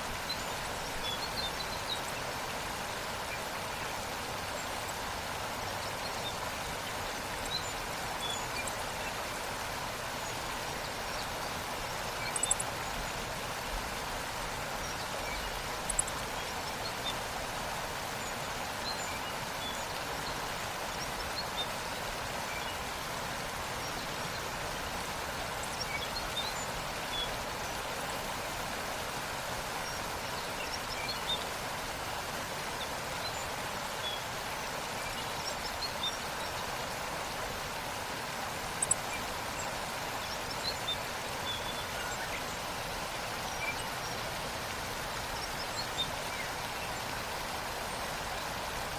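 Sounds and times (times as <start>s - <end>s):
waterfall rushing: 0.0s - 48.9s
faint bird chirps: 10.2s - 13.1s.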